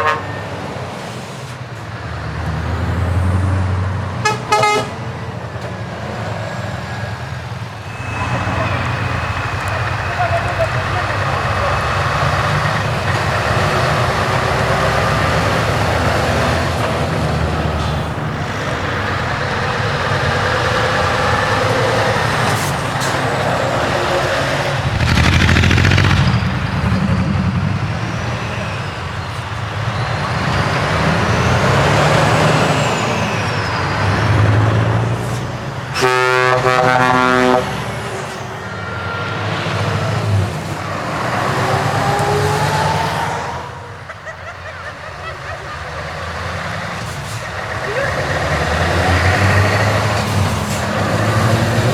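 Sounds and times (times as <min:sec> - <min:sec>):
truck air horn: 0:00.0 - 0:00.6, 0:04.2 - 0:05.3, 0:07.8 - 0:16.8, 0:17.4 - 0:32.7, 0:35.9 - 0:40.4
diesel trucks driving past: 0:00.0 - 0:51.9.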